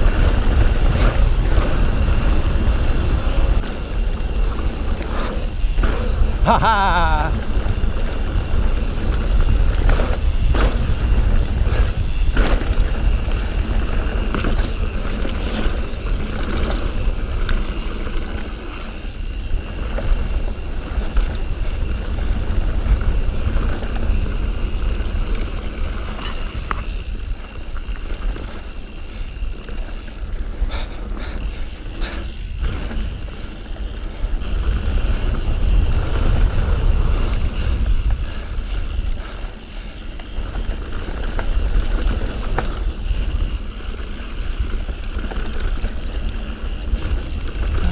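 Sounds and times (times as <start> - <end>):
bike clacking over bumps: 0.0 - 47.9
tyres on dirt and rock: 0.0 - 47.9
wind buffeting microphone: 0.0 - 47.9.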